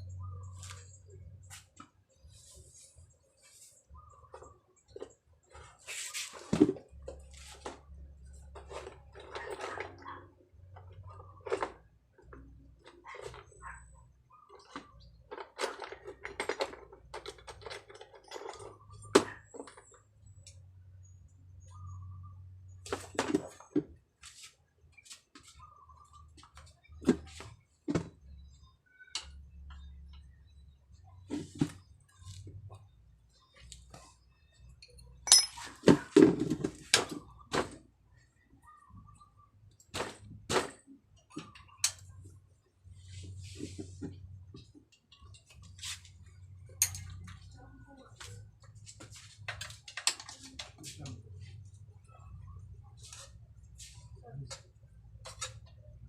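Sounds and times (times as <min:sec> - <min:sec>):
clinks and scrapes on bicycle: 0:00.0 - 0:20.6, 0:21.6 - 0:37.8, 0:39.8 - 0:51.6, 0:52.9 - 0:56.0
tools and metal parts clicking: 0:34.8 - 0:35.8, 0:46.7 - 0:47.5.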